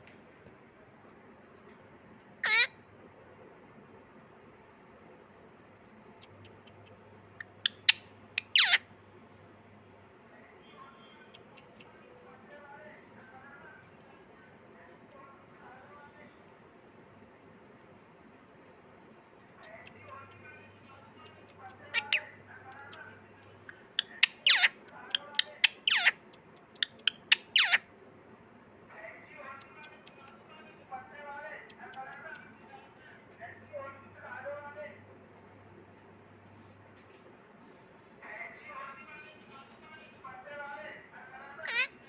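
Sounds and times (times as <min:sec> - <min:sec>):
parrot calling: 0:02.4 - 0:02.8, 0:06.2 - 0:08.9, 0:21.7 - 0:23.0, 0:23.6 - 0:27.9, 0:41.6 - 0:42.0.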